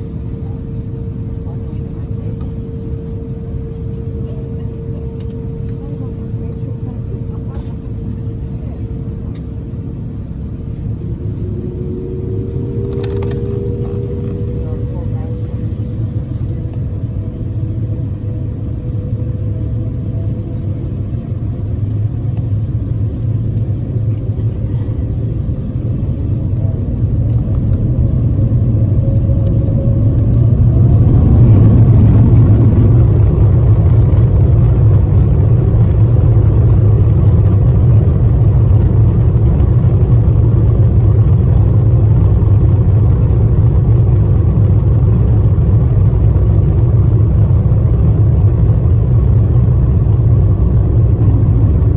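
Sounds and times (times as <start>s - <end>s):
jet engines rumbling in cabin: 0.0s - 51.9s
faint rising whine: 9.9s - 23.5s, 25.0s - 42.8s.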